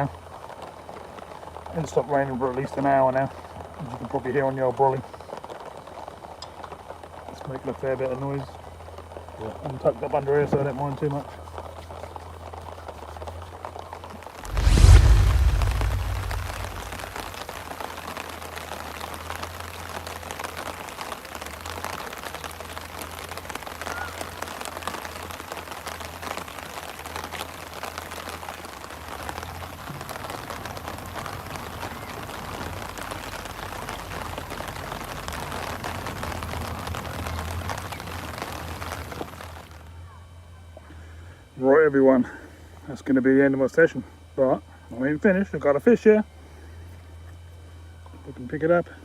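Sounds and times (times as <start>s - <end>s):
rain pattering on fabric canopy: 0.0s - 49.0s
dull low thump: 14.4s - 17.4s.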